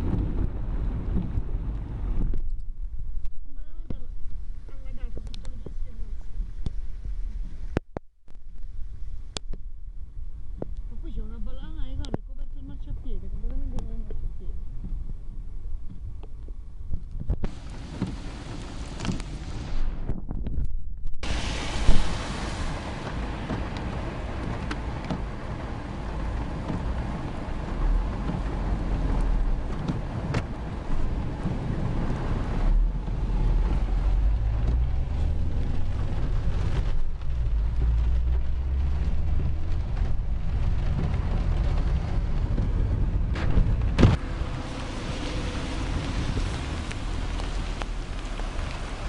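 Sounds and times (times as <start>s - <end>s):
heavy rain: 17.5s - 20.0s, 21.2s - 49.0s
deep thunder rumble: 21.1s - 49.0s.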